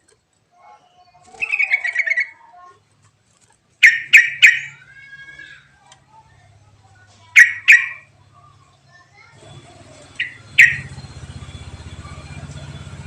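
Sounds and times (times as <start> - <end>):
bird calling: 0.7 - 2.6, 3.8 - 5.8, 7.2 - 8.6, 9.4 - 13.0.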